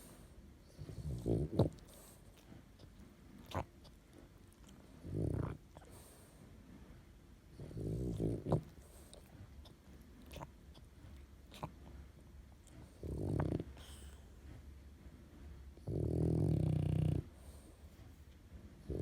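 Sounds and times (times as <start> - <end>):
dog snoring: 0.7 - 6.4, 7.5 - 10.8, 11.4 - 12.0, 12.6 - 14.4, 15.8 - 17.7.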